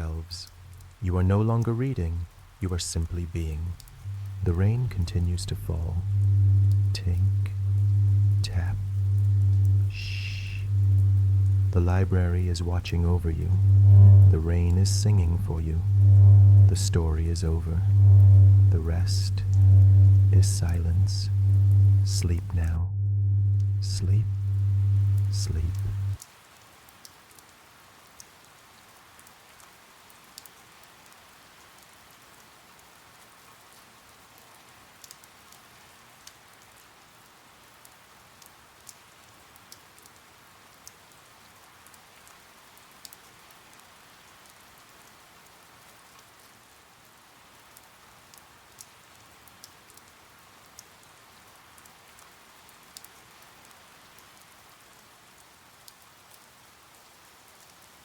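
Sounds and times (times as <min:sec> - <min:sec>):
rain hissing: 0:00.0 - 0:27.0.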